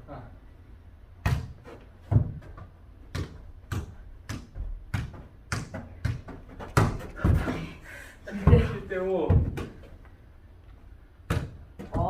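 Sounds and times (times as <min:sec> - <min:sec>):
ball kicked and bouncing: 0:01.2 - 0:07.7, 0:08.3 - 0:10.0, 0:11.2 - 0:12.0.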